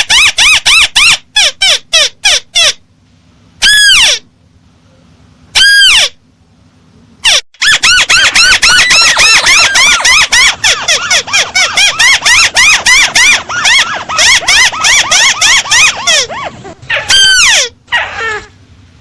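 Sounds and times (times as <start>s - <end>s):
bird squealing call: 3.6s - 4.3s, 5.6s - 6.2s, 7.2s - 18.5s.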